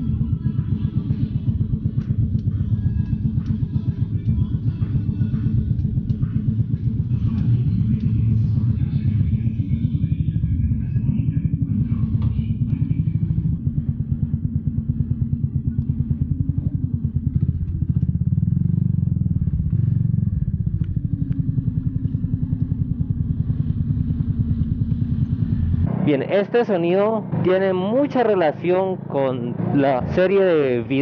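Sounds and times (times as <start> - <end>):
small motorcycle engine running: 0.0 - 31.0
whirring turbine-like noise: 19.2 - 31.0.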